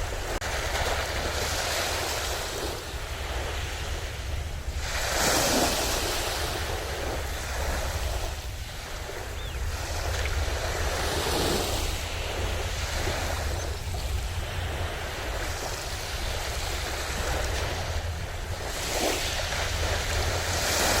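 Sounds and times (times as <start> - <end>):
sea waves breaking on shore: 0.0 - 21.0
wind rumble on microphone: 0.0 - 21.0.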